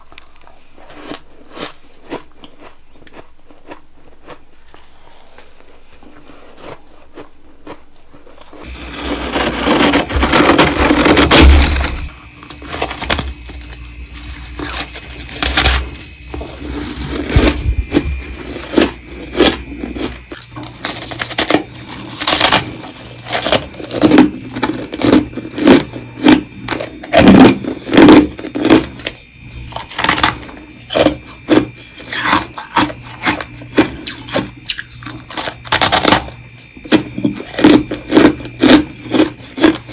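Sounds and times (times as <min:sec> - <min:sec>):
crunching bites and chewing: 0:00.0 - 0:39.9
frost scraping: 0:08.6 - 0:20.4.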